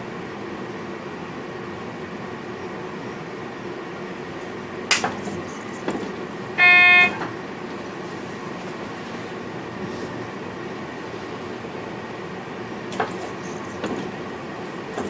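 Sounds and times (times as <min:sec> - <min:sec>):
electric train rumbling: 0:00.0 - 0:15.0
sharp click: 0:04.9 - 0:05.2
horn-like signal tone: 0:06.6 - 0:07.3.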